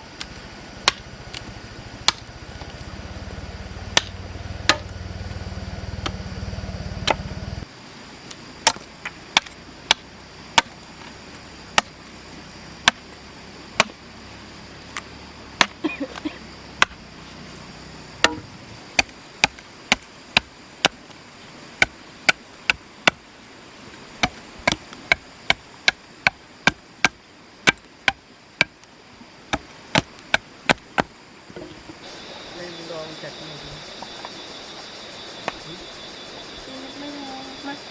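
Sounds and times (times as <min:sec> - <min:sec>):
low steady hum: 0:00.0 - 0:37.9
blade chopping wood: 0:00.2 - 0:02.8, 0:03.9 - 0:05.0, 0:06.0 - 0:06.2, 0:07.0 - 0:07.3, 0:08.6 - 0:12.0, 0:12.8 - 0:13.1, 0:13.7 - 0:14.0, 0:14.9 - 0:17.0, 0:18.2 - 0:21.1, 0:21.8 - 0:23.2, 0:24.2 - 0:28.9, 0:29.5 - 0:31.7.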